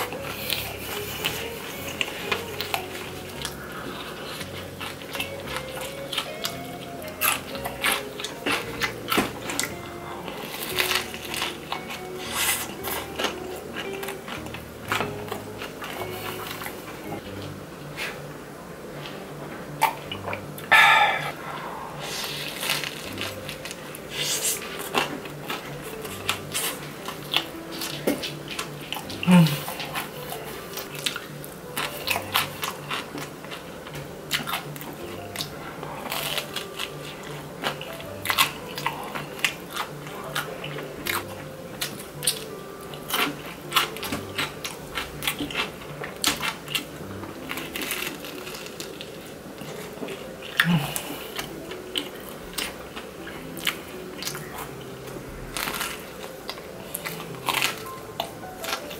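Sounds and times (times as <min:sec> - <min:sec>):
crunching and chewing pizza: 0:00.0 - 0:58.9
voiced exhale: 0:20.7 - 0:22.5.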